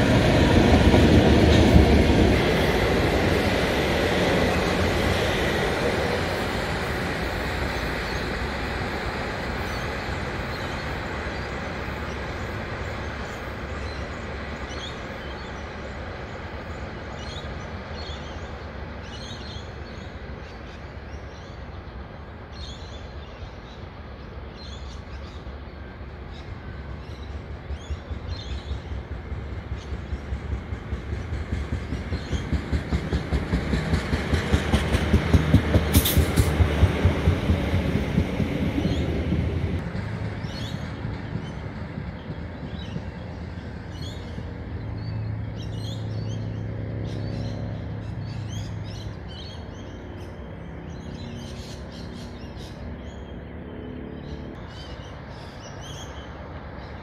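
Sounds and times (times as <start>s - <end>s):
passenger train rumbling: 0.0s - 57.0s
train wheels clacking on rail joints: 27.8s - 45.2s.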